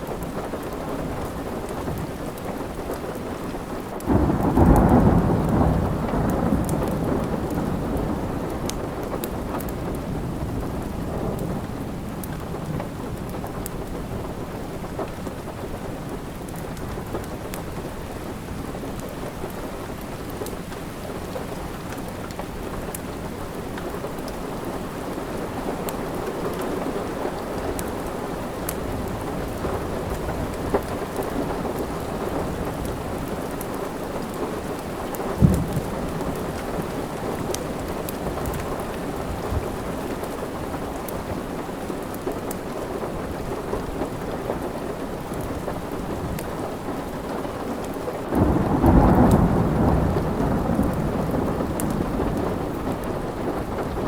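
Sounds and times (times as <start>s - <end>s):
steady rain: 0.0s - 54.0s
wood fire crackling: 6.7s - 48.7s
fire popping: 32.8s - 40.4s.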